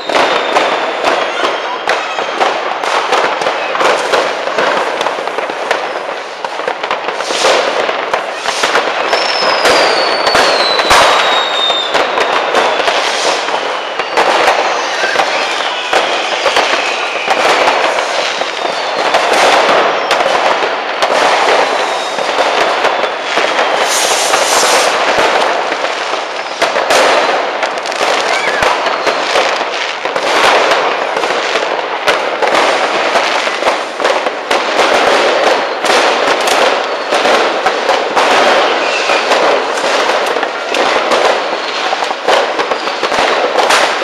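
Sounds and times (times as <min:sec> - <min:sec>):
firecrackers crackling and popping: 0:00.0 - 0:44.0
rockets banging: 0:00.0 - 0:44.0
whistling fireworks: 0:00.0 - 0:44.0.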